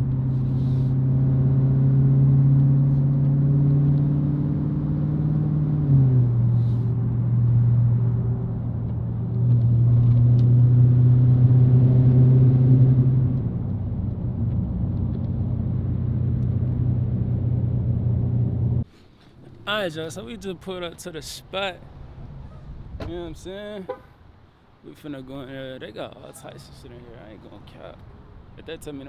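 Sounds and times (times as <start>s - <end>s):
car engine running: 0.0s - 18.8s.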